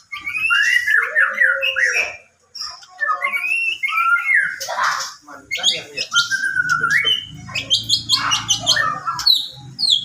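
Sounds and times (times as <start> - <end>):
bird singing whistled phrases: 0.0 - 4.7, 5.5 - 10.0.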